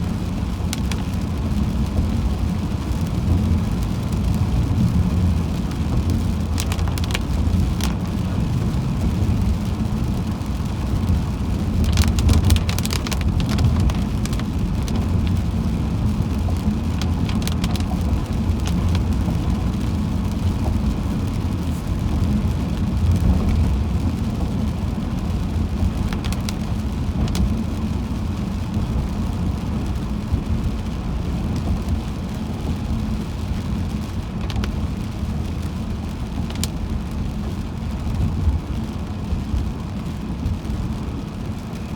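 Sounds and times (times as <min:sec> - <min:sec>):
rain and spray hissing on car: 0:00.0 - 0:41.9
road and engine rumble: 0:00.0 - 0:41.9.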